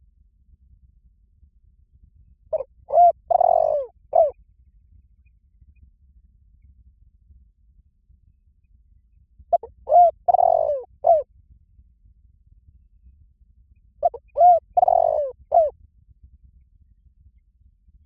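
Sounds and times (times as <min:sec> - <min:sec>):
dove cooing: 0:02.6 - 0:04.3, 0:09.6 - 0:11.2, 0:14.0 - 0:15.7.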